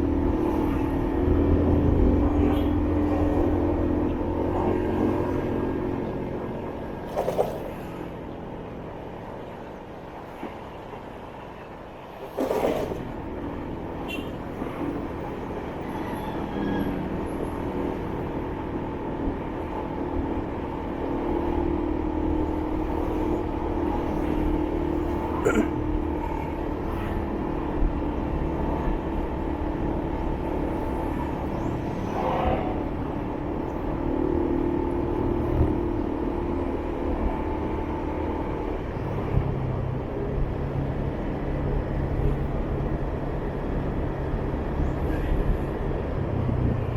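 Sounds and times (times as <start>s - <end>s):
road and traffic noise: 0.0s - 46.9s.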